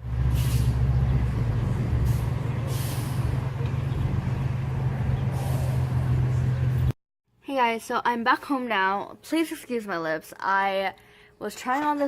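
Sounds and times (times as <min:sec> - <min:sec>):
vehicle rumbling on the move: 0:00.0 - 0:07.0
short hissing bursts: 0:02.1 - 0:03.2.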